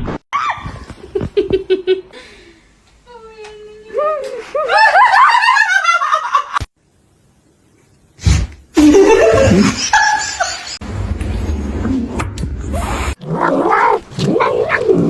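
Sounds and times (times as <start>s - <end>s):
low rumbling noise: 10.8s - 13.4s.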